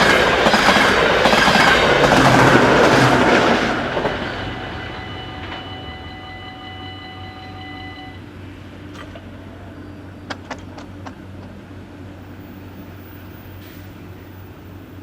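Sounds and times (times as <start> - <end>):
electronic warning bell ringing: 4.8 - 8.2
sharp clicks and knocks: 10.2 - 11.6.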